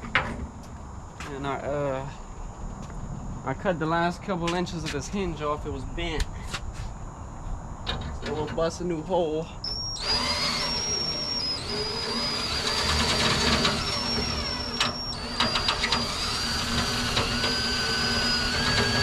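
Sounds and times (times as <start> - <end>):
electric drill whining: 9.6 - 19.0.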